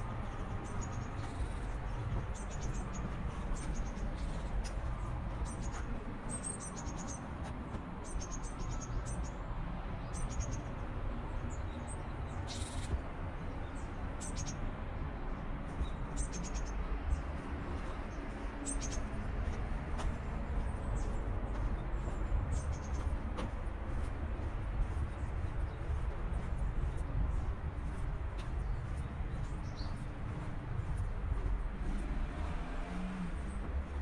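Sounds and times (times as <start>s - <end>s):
small birds chirping: 15.8s - 19.6s, 20.5s - 23.3s, 24.0s - 31.1s.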